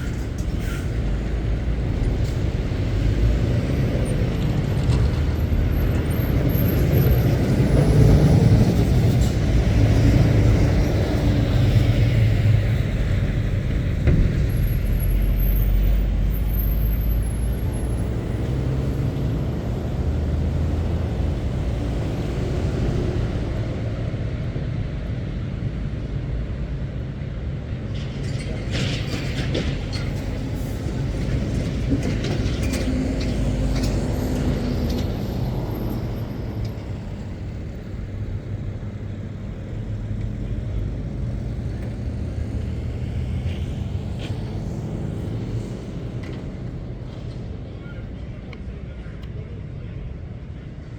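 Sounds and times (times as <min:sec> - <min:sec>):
lorries driving past: 0:00.0 - 0:50.9.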